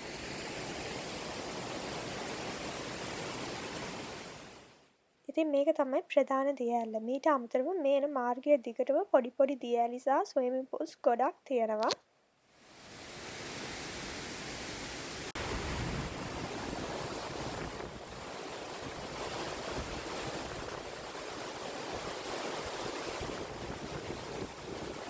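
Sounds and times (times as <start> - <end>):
waterfall rushing: 12.8 - 25.0.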